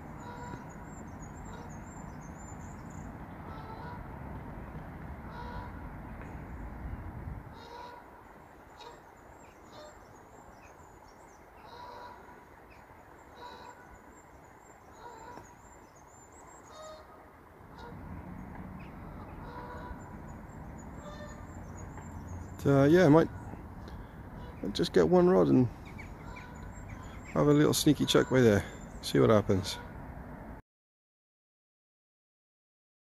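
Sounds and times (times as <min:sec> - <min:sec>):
birds calling: 0:00.0 - 0:30.0
thin high bird twittering: 0:18.4 - 0:29.6.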